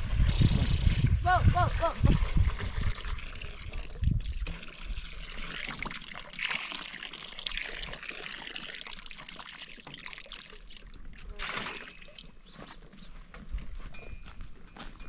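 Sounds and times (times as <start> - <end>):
water trickling and pouring: 1.5 - 12.5.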